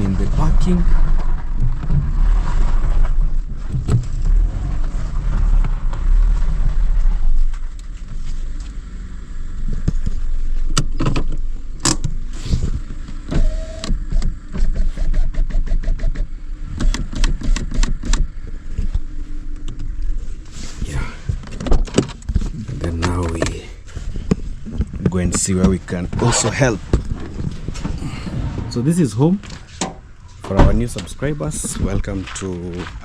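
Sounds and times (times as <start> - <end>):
vehicle engine humming: 0.0 - 33.0
sharp knocks and clicks: 13.8 - 18.3.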